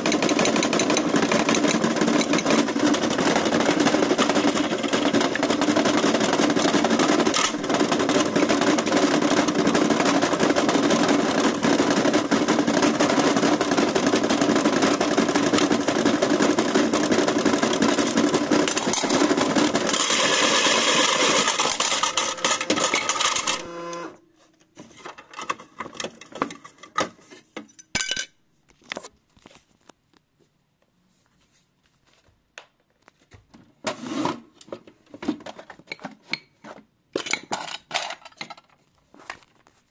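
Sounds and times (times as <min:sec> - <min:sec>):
washing machine rattling: 0:00.0 - 0:23.6.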